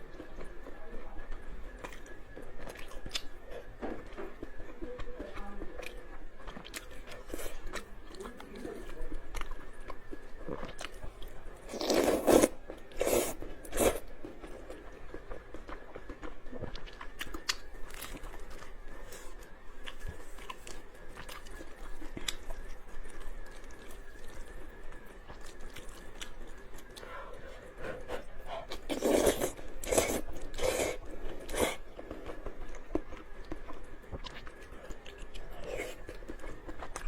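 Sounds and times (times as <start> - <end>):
person chewing noodles: 0.0 - 37.0
bites and slurps: 11.7 - 14.6, 27.8 - 37.0.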